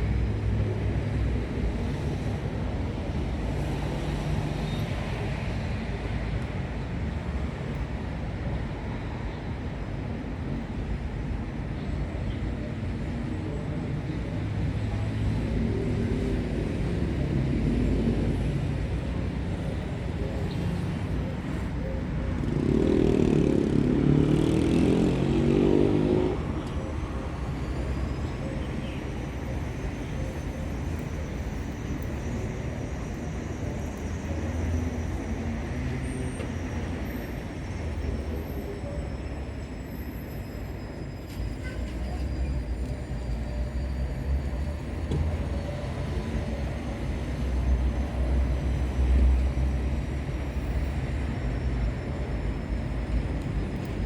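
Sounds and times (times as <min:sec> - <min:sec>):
road traffic rumble: 0:00.0 - 0:54.0
vehicle passing: 0:22.4 - 0:26.6.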